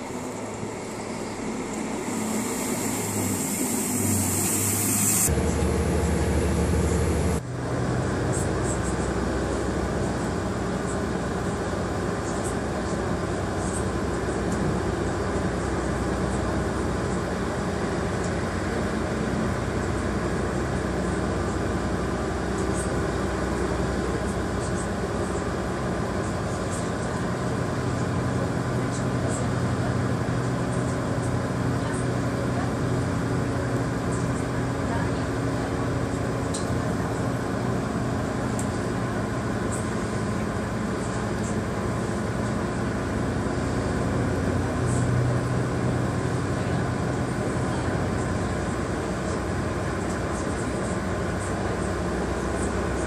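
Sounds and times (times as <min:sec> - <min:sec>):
rail noise: 0:00.0 - 0:09.6
diesel engine droning: 0:00.0 - 0:53.0
loud hiss: 0:00.5 - 0:05.5.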